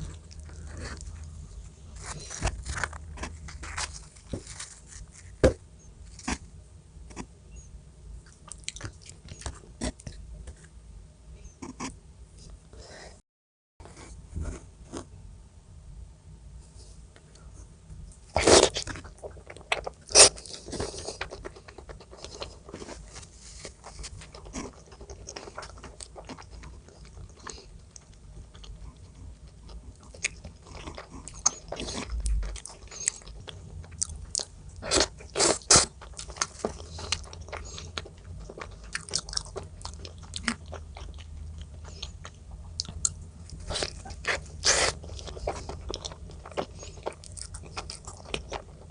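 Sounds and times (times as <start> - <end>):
person chewing crunchy food: 0.0 - 6.4, 8.2 - 10.2, 18.3 - 48.9.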